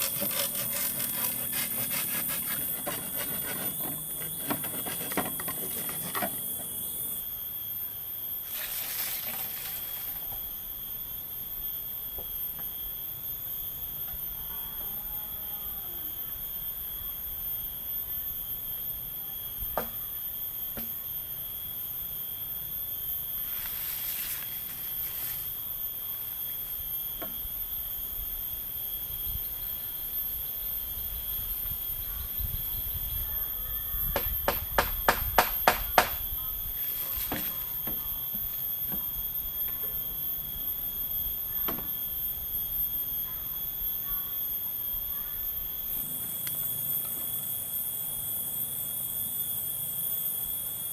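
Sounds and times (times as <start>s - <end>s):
insects droning: 0.0s - 50.9s
sharp knocks: 34.2s - 36.2s.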